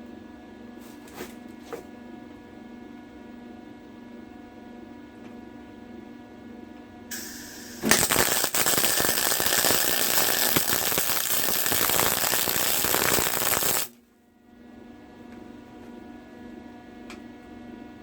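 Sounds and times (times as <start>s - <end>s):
brief hiss: 7.1s - 8.2s
electric welding arc crackling: 7.1s - 14.0s.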